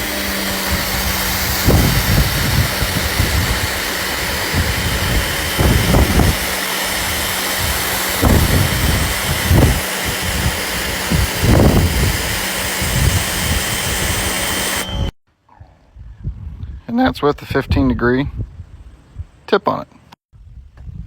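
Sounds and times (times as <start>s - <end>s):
pressure washer motor hum: 0.0s - 15.2s
water jet hissing: 0.0s - 15.2s.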